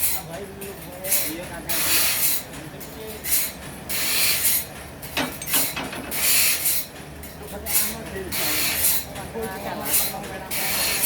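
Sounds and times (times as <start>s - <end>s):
saw cutting through wood: 1.1s - 2.5s, 6.1s - 6.9s, 7.7s - 9.1s, 9.8s - 11.0s.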